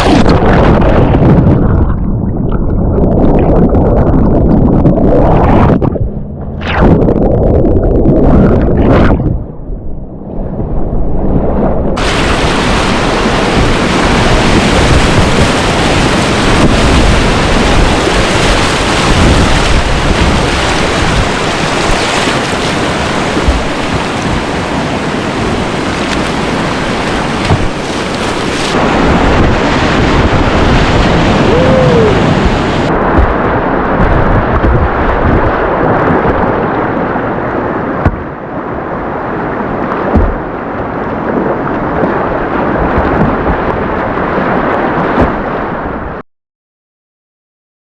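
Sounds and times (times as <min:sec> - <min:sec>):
wind buffeting microphone: 0:00.0 - 0:46.2
whitewater rapids rushing: 0:12.0 - 0:36.6.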